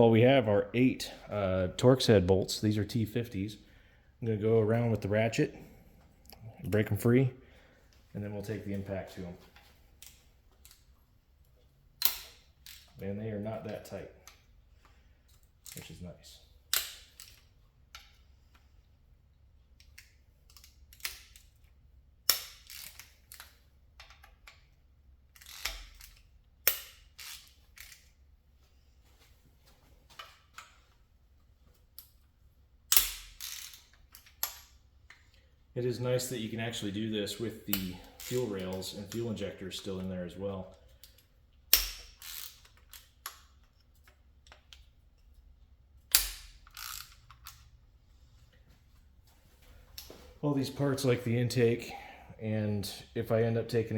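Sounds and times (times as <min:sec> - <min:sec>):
tools clicking: 0:16.7 - 0:18.7, 0:19.8 - 0:21.7, 0:22.3 - 0:28.2, 0:32.9 - 0:35.4, 0:37.7 - 0:39.3, 0:40.8 - 0:47.7
metallic tool clicks and clanks: 0:32.9 - 0:34.7, 0:46.1 - 0:47.7.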